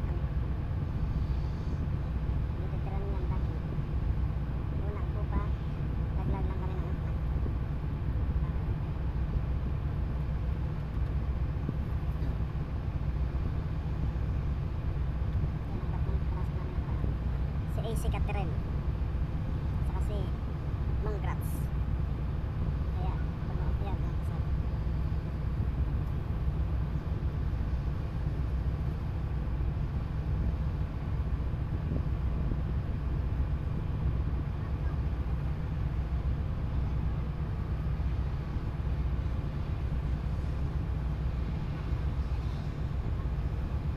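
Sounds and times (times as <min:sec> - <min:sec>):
boat engine rumble: 0:00.0 - 0:43.9.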